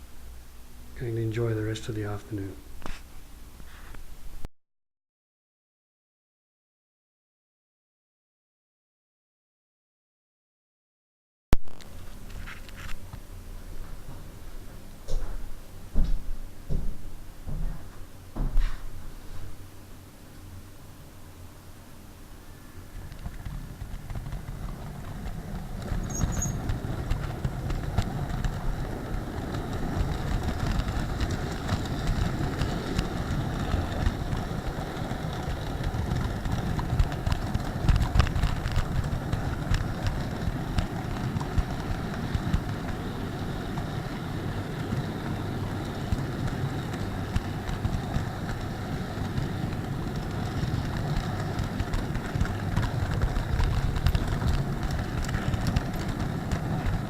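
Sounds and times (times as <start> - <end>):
model train wheels rumbling: 0.9 - 3.0, 22.2 - 57.0
faint motor whine: 11.7 - 57.0
track clicks: 23.0 - 57.0.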